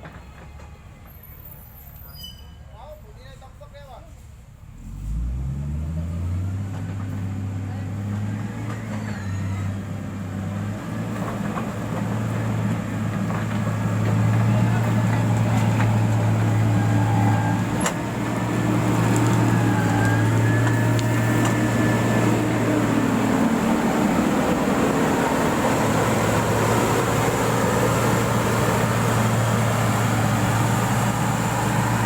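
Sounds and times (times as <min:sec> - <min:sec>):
diesel engine running: 0:04.5 - 0:32.0.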